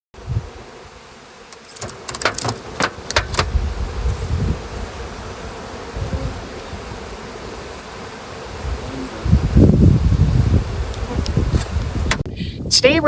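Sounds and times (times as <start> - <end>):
bees buzzing: 0.2 - 12.3
sharp clicks and knocks: 1.5 - 3.5.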